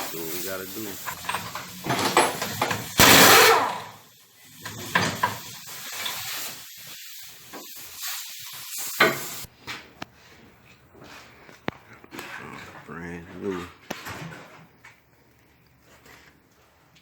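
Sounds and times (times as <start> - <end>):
loud hiss: 0.0 - 1.2, 1.8 - 4.0, 5.0 - 9.5.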